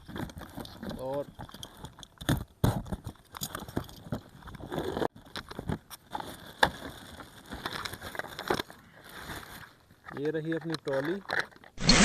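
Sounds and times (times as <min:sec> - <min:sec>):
cardboard packaging rustling: 0:05.6 - 0:09.9.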